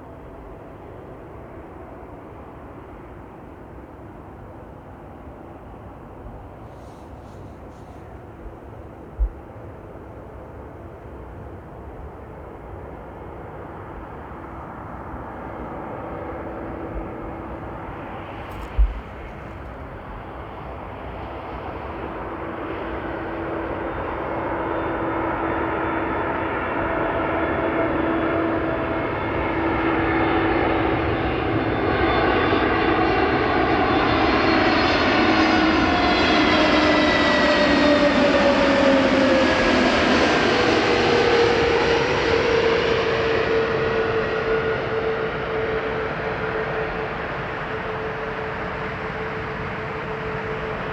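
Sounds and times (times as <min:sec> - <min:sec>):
jet airliner engines whining: 0:05.2 - 0:50.9.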